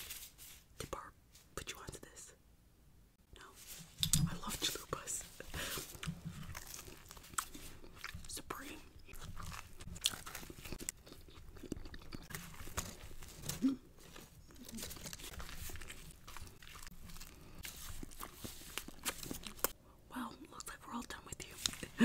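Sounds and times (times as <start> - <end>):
crunchy food chewing: 5.4 - 19.8.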